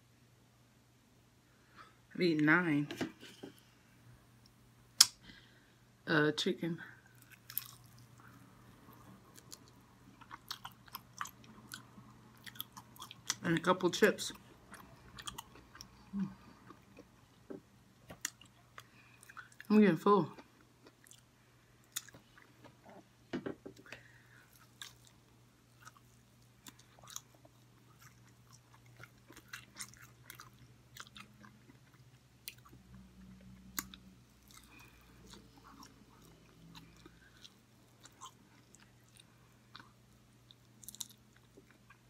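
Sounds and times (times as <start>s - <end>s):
low steady hum: 0.0s - 42.0s
person chewing and biting: 7.1s - 8.2s, 8.9s - 13.4s, 14.7s - 17.2s, 18.1s - 19.6s, 20.6s - 22.5s, 24.5s - 32.8s, 33.6s - 42.0s.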